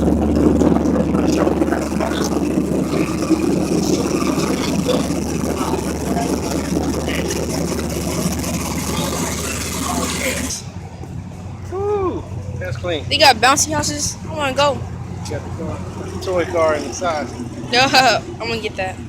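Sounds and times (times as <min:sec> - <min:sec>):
car engine idling: 0:00.0 - 0:19.0
faint voices: 0:00.0 - 0:19.0.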